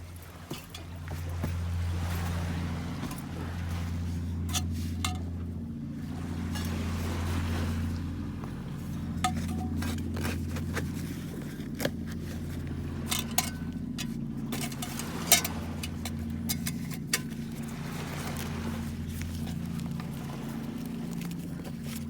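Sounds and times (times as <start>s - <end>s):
low engine drone: 0.0s - 22.0s
light clinks and taps: 4.3s - 5.6s, 8.8s - 22.0s.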